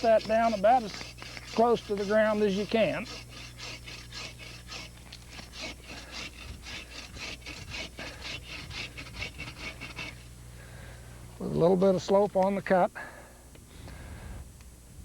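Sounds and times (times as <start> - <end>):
hand saw rasping through wood: 0.0 - 10.3.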